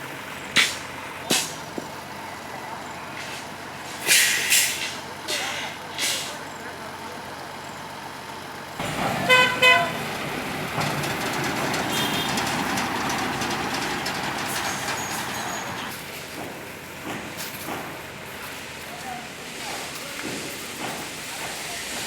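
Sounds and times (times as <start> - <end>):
heavy vehicle engine running: 6.0 - 18.8
vehicle horn toots: 8.8 - 15.9.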